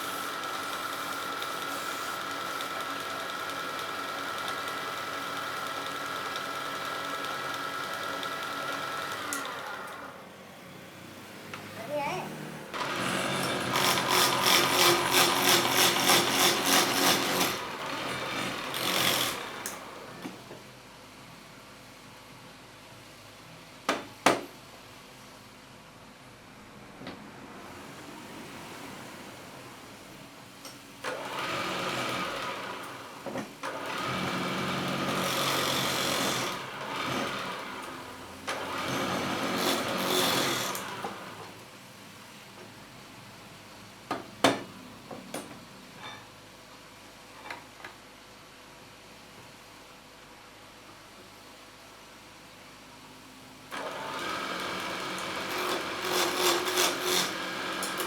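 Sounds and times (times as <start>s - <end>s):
wood lathe running: 0.3s - 10.2s, 12.8s - 20.1s, 33.7s - 41.5s, 53.8s - 58.0s
turning tool cutting wood: 12.8s - 20.0s, 33.7s - 41.3s, 53.8s - 58.0s.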